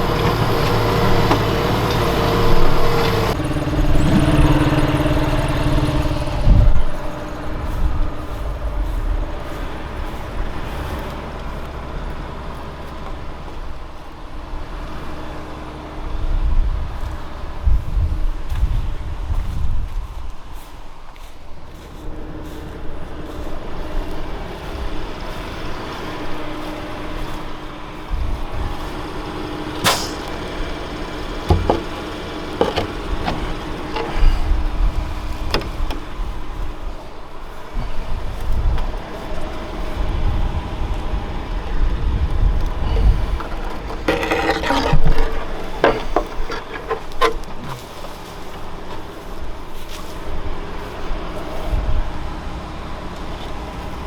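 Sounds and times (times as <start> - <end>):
tractor engine under load: 0.0 - 54.0
sharp knocks: 29.8 - 30.5, 31.5 - 34.0
clattering: 29.8 - 36.2, 42.8 - 48.0.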